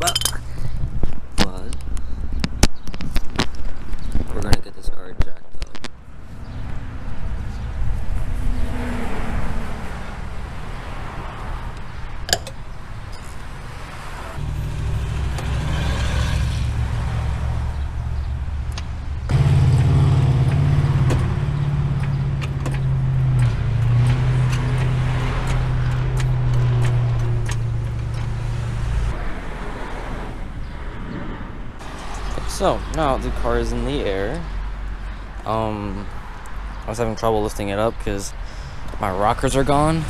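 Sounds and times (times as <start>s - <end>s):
car engine running: 14.4s - 29.1s.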